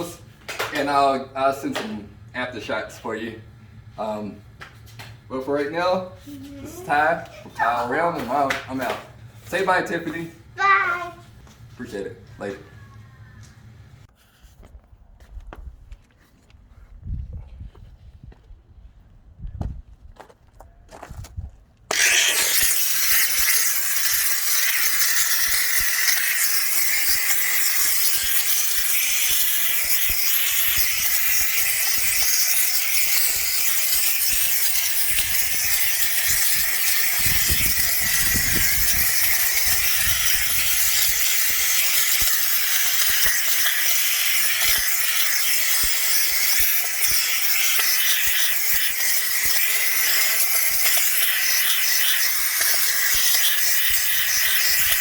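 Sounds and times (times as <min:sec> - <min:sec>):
cleaning machine hissing: 0:21.9 - 0:55.0.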